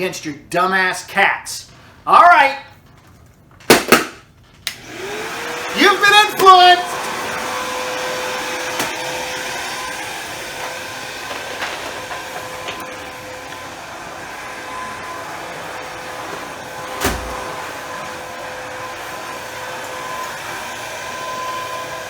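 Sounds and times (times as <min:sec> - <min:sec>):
vacuum cleaner running: 0:04.7 - 0:22.0.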